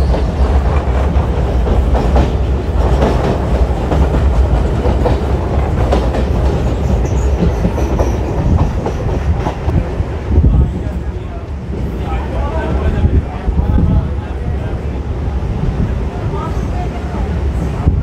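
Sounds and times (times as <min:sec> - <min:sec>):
wheels clickety-clack over rails: 0:00.0 - 0:09.9
train rumbling: 0:00.0 - 0:18.0.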